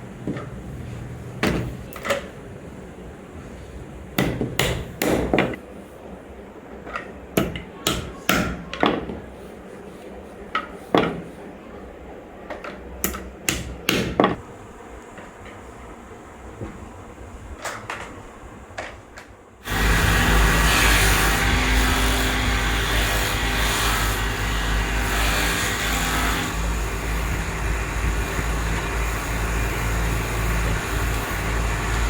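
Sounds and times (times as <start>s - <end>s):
steady low hum: 19.6s - 32.0s.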